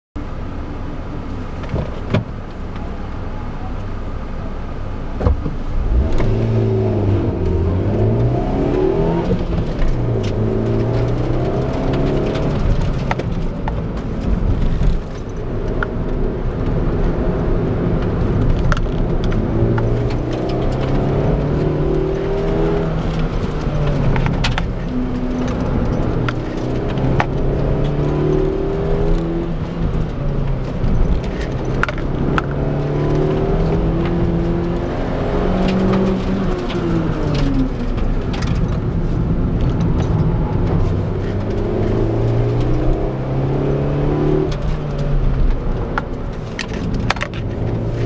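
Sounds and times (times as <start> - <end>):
car engine revving: 5.0 - 48.0
sharp clicks and rattles: 7.3 - 17.2, 17.9 - 43.8, 44.4 - 48.0.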